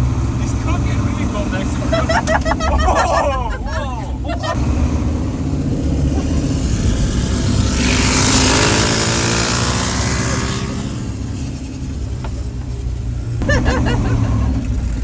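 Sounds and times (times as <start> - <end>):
lawn mower engines running: 0.0 - 15.0
wind noise: 2.0 - 10.0
person shouting: 2.8 - 4.5.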